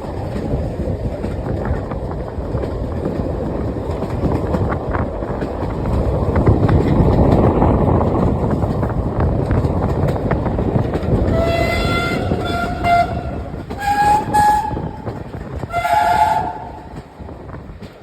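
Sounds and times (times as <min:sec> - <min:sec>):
steam locomotive rumble: 0:00.0 - 0:18.0
steam whistle blasts: 0:11.4 - 0:15.0, 0:15.7 - 0:16.8.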